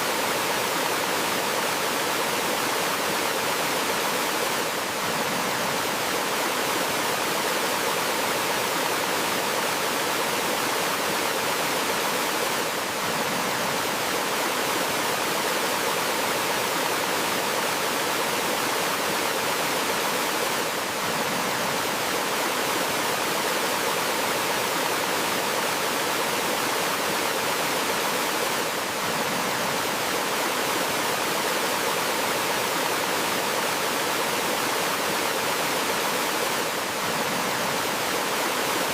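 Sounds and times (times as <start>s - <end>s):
stream over small waterfall: 0.0s - 38.9s.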